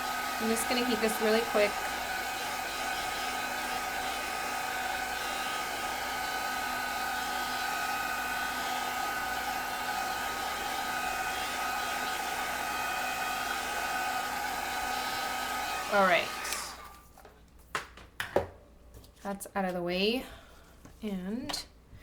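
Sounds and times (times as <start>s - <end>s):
heat gun blowing: 0.0s - 17.0s.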